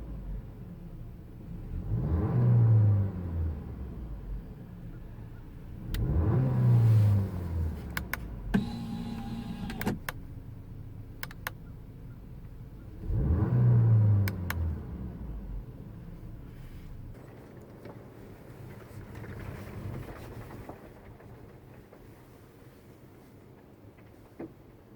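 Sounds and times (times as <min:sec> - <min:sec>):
car engine idling and revving: 0:00.0 - 0:17.2
sharp clicks: 0:11.2 - 0:11.6.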